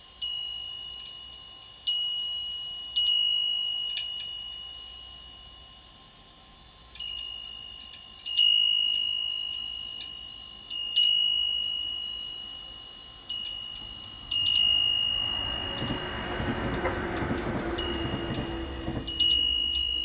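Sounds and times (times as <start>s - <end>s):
rushing noise: 13.8s - 20.0s.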